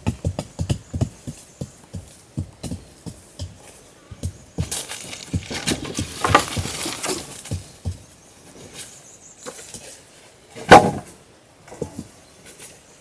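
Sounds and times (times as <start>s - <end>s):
scraping: 4.6s - 7.6s.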